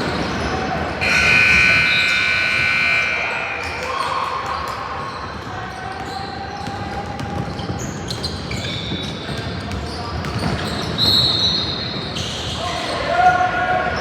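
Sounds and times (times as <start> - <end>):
spectators chatting: 0.0 - 7.1.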